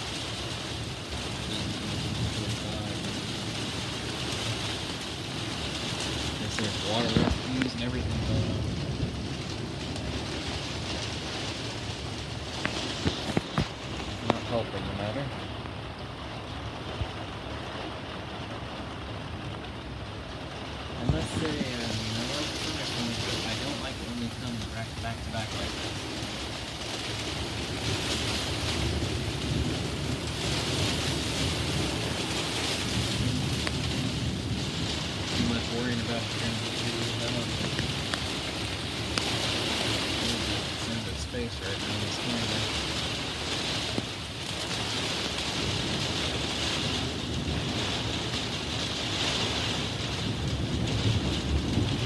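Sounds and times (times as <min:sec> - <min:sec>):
heavy rain: 0:00.0 - 0:52.0
thunder rumble: 0:00.0 - 0:52.0
wind: 0:00.0 - 0:52.0
low rumble: 0:20.6 - 0:43.2.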